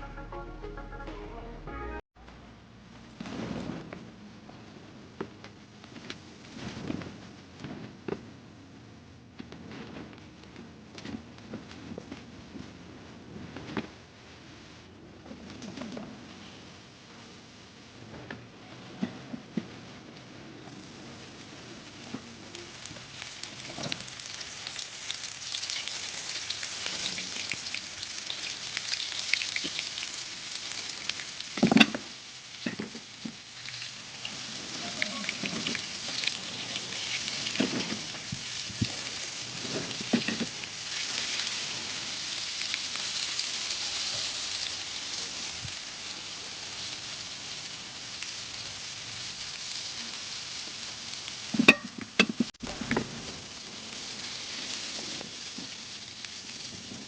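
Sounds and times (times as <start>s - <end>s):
fish frying in hot oil: 21.4s - 57.0s.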